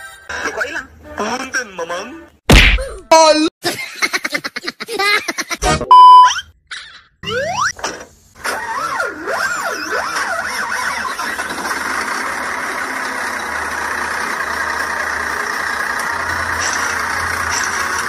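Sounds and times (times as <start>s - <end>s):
engine running steadily: 11.2s - 18.0s.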